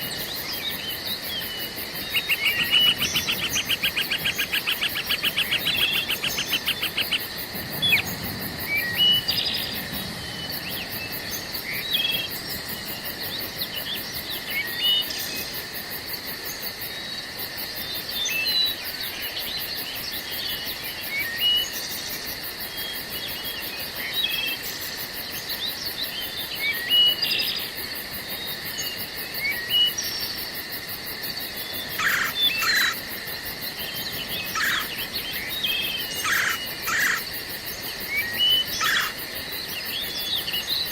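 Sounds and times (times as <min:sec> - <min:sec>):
high pulsing insect trill: 0:00.0 - 0:40.9
insect chirring: 0:00.0 - 0:40.9
bird chirps and calls: 0:32.0 - 0:33.0, 0:34.1 - 0:37.3, 0:38.2 - 0:39.2.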